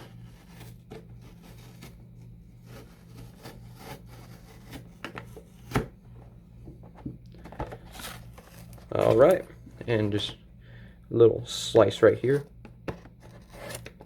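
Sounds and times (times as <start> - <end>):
knife cutting cardboard box: 0.0 - 6.0, 12.4 - 14.0.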